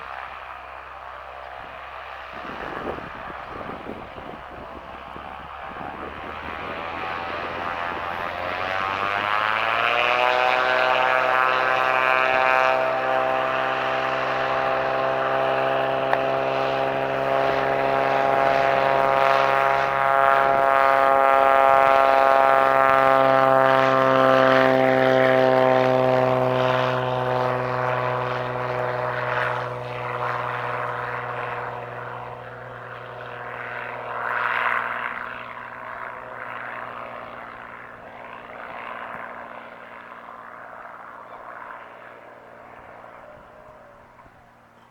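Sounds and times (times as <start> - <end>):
propeller airplane engine: 0.0 - 44.9.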